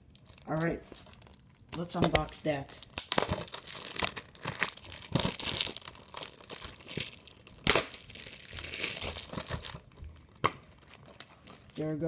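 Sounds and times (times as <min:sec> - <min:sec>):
sharp plastic crackle: 0:00.0 - 0:11.9
plastic wrapping crinkling and tearing: 0:00.0 - 0:12.0.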